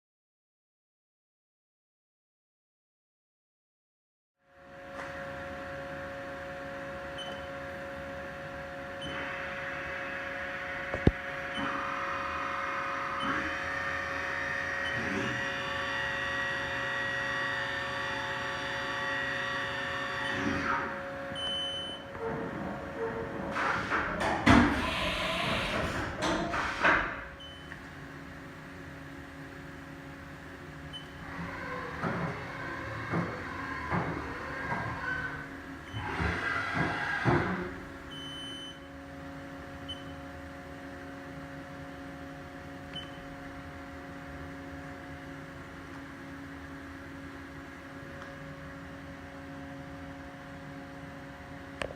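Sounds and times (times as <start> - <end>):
milling machine humming: 5.3 - 38.2.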